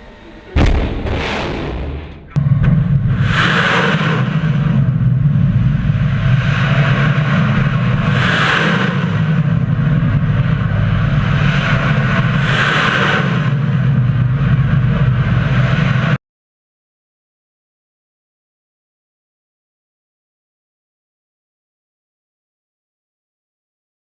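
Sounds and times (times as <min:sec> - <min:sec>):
loud low rumble: 0:00.0 - 0:16.2.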